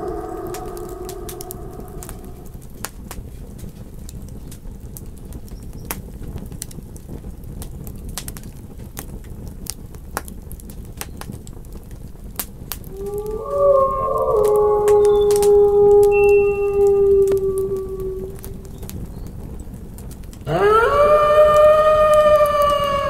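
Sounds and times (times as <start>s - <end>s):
wolf howl: 0.0s - 2.7s, 12.8s - 19.0s, 20.5s - 23.0s
campfire crackling: 0.0s - 23.0s.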